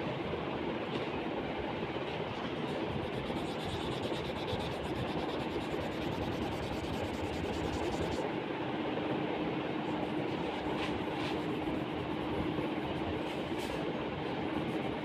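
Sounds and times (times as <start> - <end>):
low even hum: 0.0 - 15.0
steady rushing background noise: 1.0 - 8.4
crayon rubbing on paper: 2.5 - 8.2, 9.9 - 13.8.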